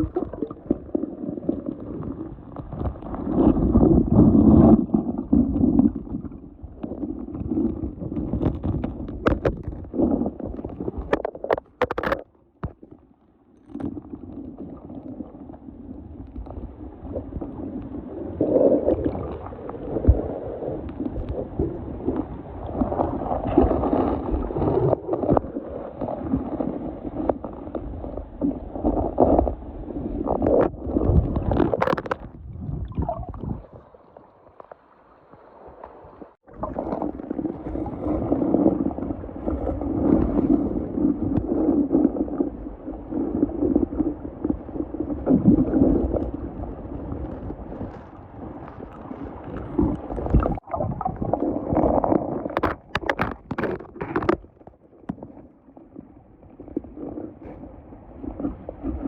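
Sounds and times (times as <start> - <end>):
water sloshing and gurgling: 0.0 - 59.0
wind buffeting microphone: 29.8 - 33.9.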